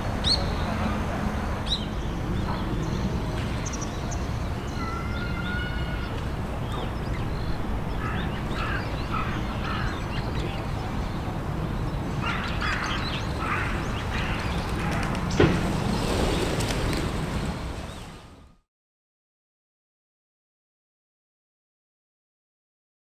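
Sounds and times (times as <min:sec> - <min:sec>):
birds calling: 0:00.2 - 0:18.4.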